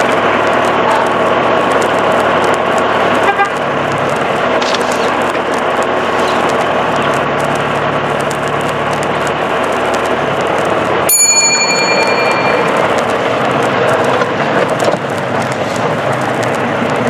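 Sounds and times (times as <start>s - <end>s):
road traffic noise: 0.0s - 17.0s
car horn tooting: 3.1s - 3.7s.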